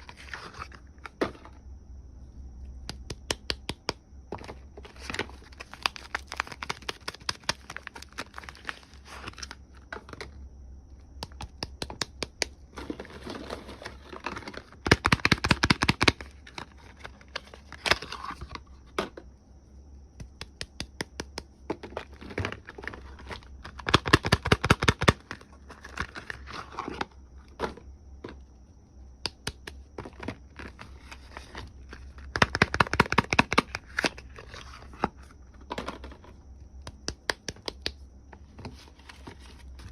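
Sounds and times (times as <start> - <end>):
wrappers crinkling and tearing: 5.0 - 9.5.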